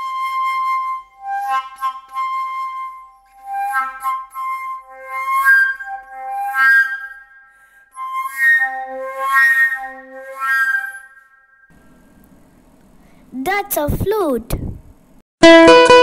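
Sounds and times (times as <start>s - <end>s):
flute playing slow melody: 0.0s - 11.7s
flute breath noise: 7.0s - 8.4s.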